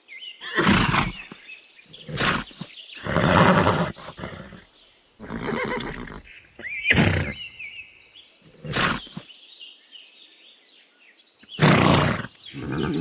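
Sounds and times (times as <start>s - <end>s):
horse calling: 0.4s - 7.6s, 8.5s - 9.2s, 11.6s - 13.0s.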